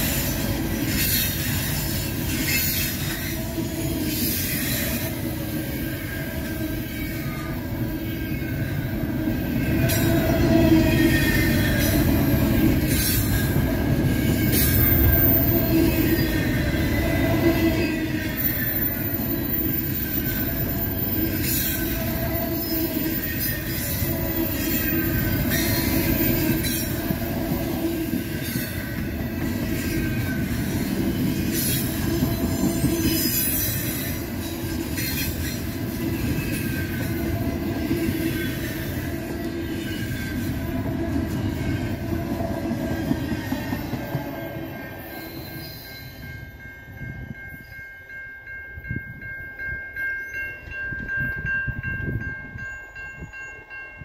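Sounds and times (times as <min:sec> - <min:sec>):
steel wheels rumbling on rail: 0:00.0 - 0:54.0.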